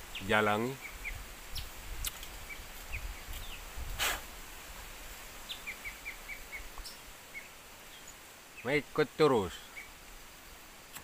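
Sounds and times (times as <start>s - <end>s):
small bird chirping: 0.0s - 3.7s, 5.4s - 8.8s
faint outdoor background noise: 0.0s - 11.0s.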